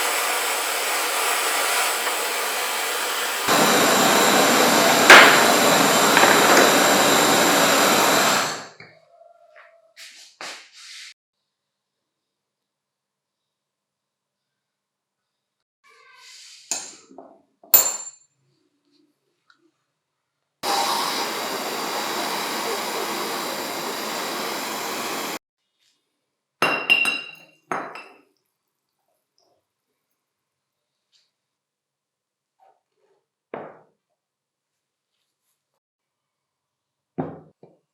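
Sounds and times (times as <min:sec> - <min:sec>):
electric power tool whining: 0:00.0 - 0:08.7, 0:20.6 - 0:25.4.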